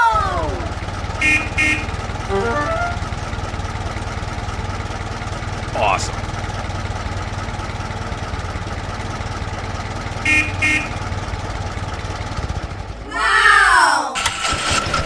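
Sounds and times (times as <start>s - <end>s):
low engine hum: 0.0s - 13.7s
car horn toots: 1.1s - 3.2s, 10.2s - 11.2s
pitched tone sliding down: 2.3s - 3.3s.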